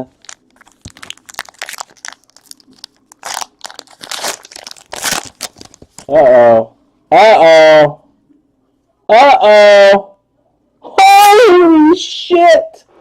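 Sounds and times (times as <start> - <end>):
packaging crinkling: 0.0 - 6.1.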